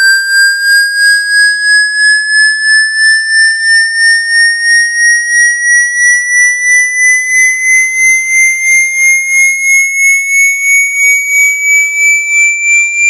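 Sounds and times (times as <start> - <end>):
pulsing high electronic tone: 0.0 - 6.0, 9.5 - 13.0.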